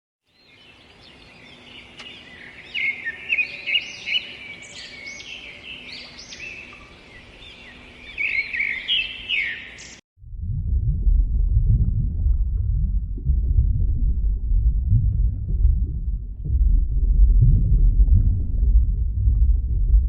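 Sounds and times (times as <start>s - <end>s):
small birds chirping: 0.3s - 10.0s.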